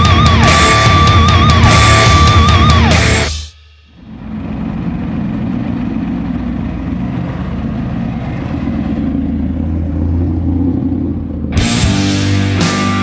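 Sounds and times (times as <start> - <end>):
rock music: 0.0 - 4.1, 11.5 - 13.0
car engine low rumble: 3.9 - 13.0.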